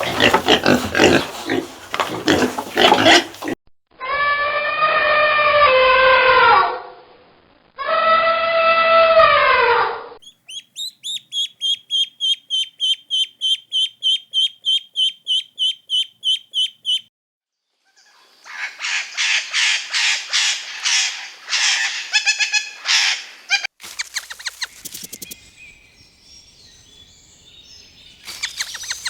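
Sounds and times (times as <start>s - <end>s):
drawn-out falling bird call: 10.2s - 17.0s, 23.8s - 29.0s
harsh rapid bird squawks: 10.2s - 17.0s, 23.8s - 25.4s, 28.3s - 29.0s
quick high bird chirps: 10.2s - 17.1s, 23.8s - 29.0s.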